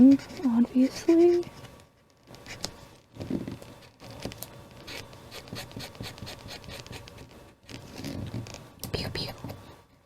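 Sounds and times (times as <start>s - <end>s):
paper scratching and rubbing: 0.0s - 1.7s, 4.8s - 8.5s.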